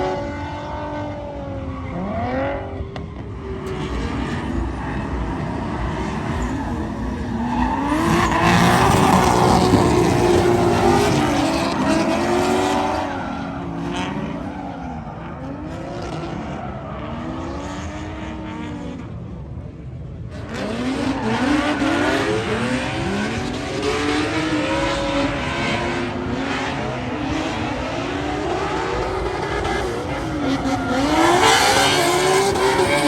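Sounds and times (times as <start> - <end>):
car engine revving hard: 3.6 - 14.4, 20.4 - 33.0.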